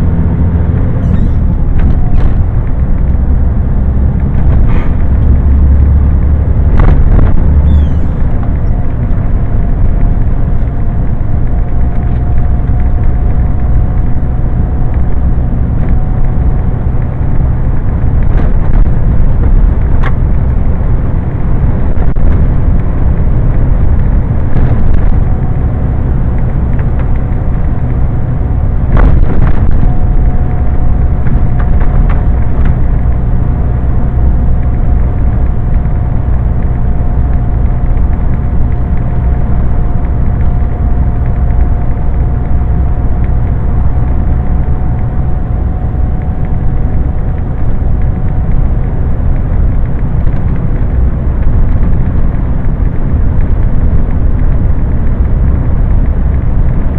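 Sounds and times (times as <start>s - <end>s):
lorry engine and road noise: 0.0s - 56.9s
thin steady whine: 0.0s - 56.9s.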